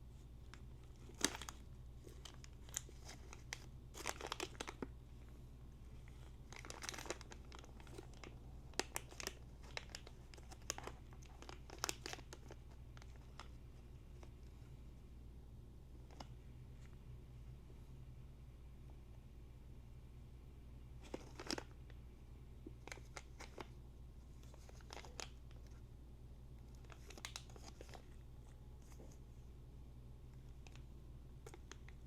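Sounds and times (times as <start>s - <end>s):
packaging crinkling: 0.5s - 4.9s, 6.0s - 13.6s, 21.0s - 21.8s, 22.8s - 23.7s, 24.4s - 25.8s, 26.7s - 28.2s
steady low hum: 27.9s - 32.0s.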